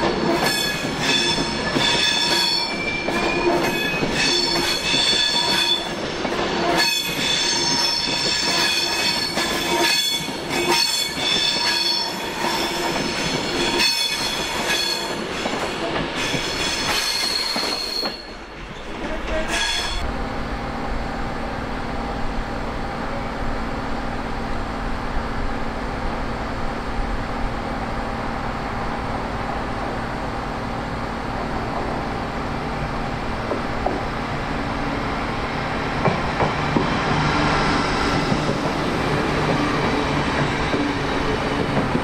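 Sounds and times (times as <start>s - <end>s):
train wheels squealing on rails: 0.0s - 20.1s, 36.8s - 42.0s
train drone with low hum: 0.0s - 42.0s.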